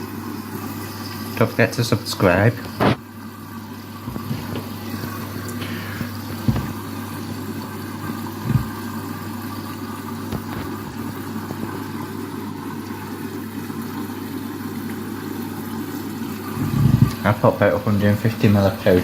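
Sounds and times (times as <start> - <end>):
washing machine motor hum: 0.0 - 19.0
washing machine thumps: 6.0 - 6.9, 8.4 - 8.8.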